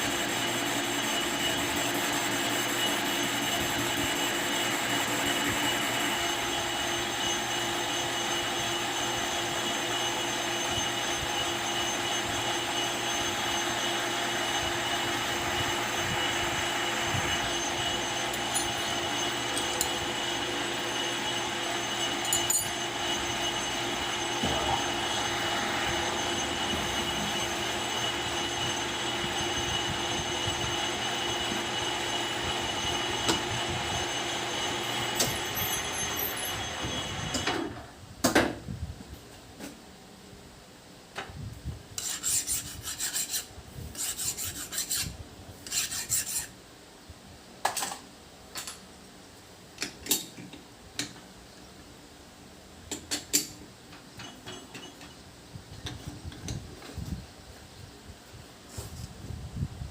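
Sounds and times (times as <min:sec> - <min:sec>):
metal lathe whining: 0:00.0 - 0:37.7.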